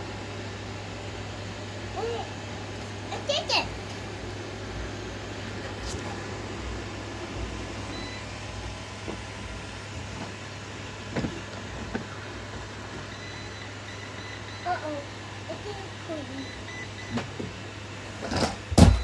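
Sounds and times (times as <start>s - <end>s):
short knocks: 18.7s - 19.0s.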